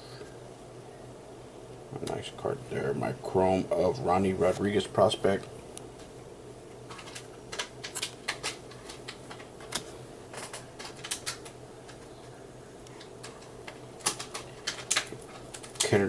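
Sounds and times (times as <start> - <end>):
faint steady hum: 0.0 - 16.0
trading cards clicking and snapping: 6.9 - 12.1, 13.0 - 16.0.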